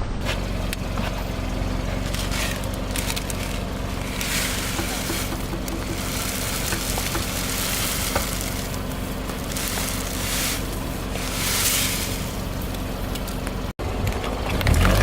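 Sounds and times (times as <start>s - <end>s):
car engine running: 0.0s - 15.0s
objects crushed under tyre: 0.7s - 13.7s
small cracks: 2.0s - 10.8s.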